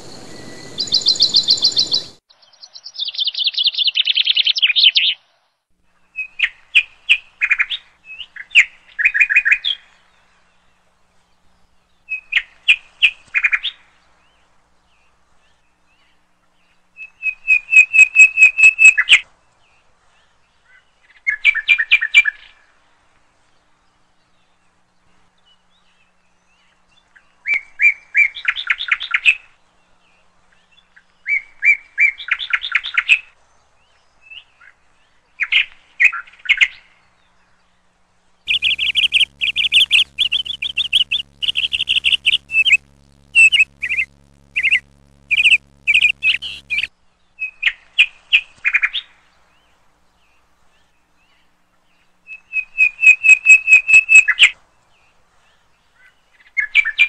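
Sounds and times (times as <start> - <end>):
songbird chirping: 0.0 - 5.0, 38.5 - 46.9
low steady hum: 38.5 - 46.9.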